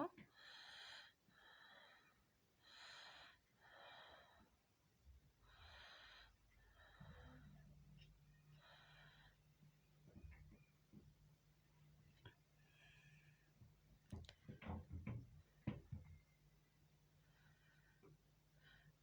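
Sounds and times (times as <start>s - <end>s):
soft breathing: 0.3s - 10.3s, 12.2s - 13.8s, 17.1s - 19.0s.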